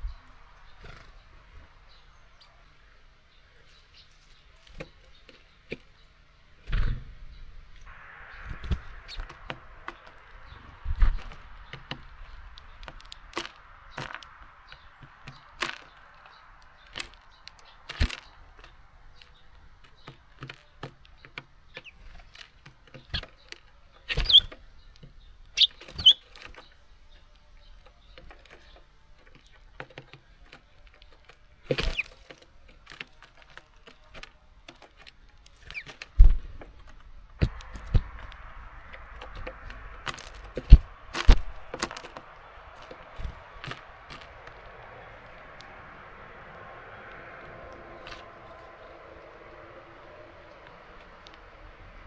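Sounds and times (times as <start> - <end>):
birds tapping on seed feeder: 3.6 - 52.0
short high bird chirps: 7.9 - 18.0.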